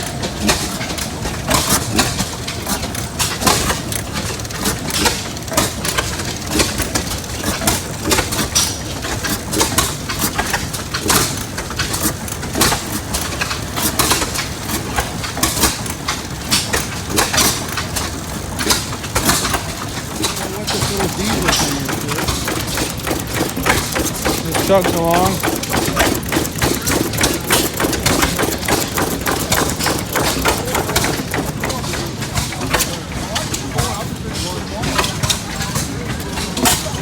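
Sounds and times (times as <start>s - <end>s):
gas engine exhaust pops: 4.6s - 32.9s.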